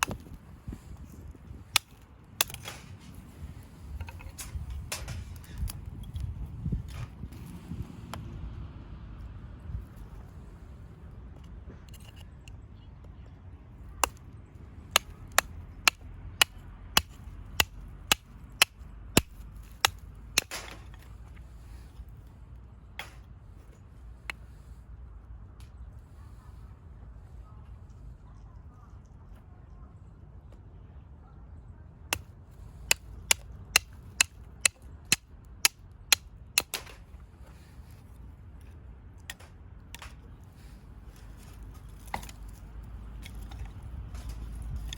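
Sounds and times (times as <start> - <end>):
axe splitting firewood: 0.0 - 3.0, 14.0 - 14.3, 14.9 - 21.2, 23.0 - 23.3, 32.1 - 38.0, 39.2 - 44.9
low wind noise: 0.0 - 44.9
axe chopping kindling: 1.7 - 2.9, 14.9 - 21.1.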